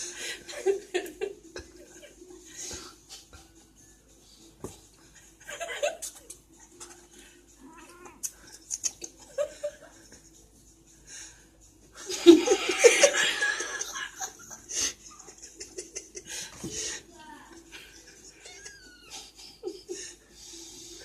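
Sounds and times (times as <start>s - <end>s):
people laughing: 0.0s - 3.7s, 5.4s - 6.4s, 8.4s - 10.3s, 12.0s - 16.9s, 17.6s - 20.2s.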